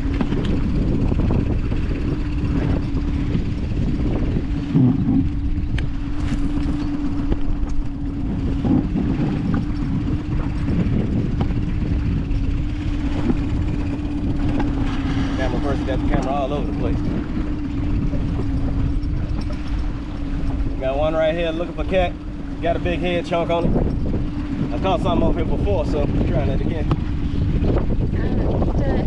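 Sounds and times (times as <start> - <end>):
boat motor running: 0.0 - 29.0.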